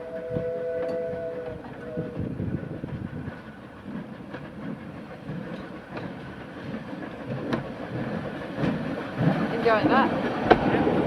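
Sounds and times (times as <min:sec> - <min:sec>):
steam train chugging: 0:00.0 - 0:11.0
wheels clicking over rail joints: 0:02.9 - 0:10.7.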